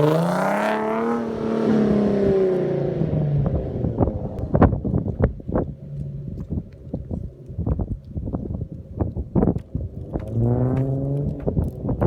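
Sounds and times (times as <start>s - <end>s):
car engine revving: 0.0s - 12.0s
exhaust pops and crackles: 3.4s - 12.0s.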